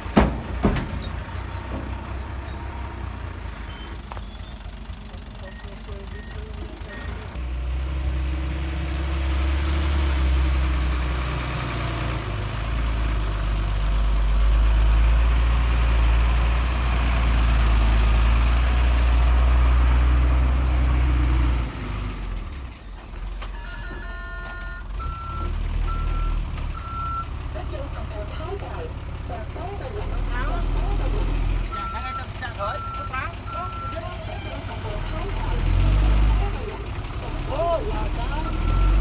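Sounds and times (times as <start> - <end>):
heavy diesel machinery engine: 0.0 - 39.0
reversing alarm beeping: 23.6 - 27.3, 31.7 - 35.8, 38.0 - 39.0.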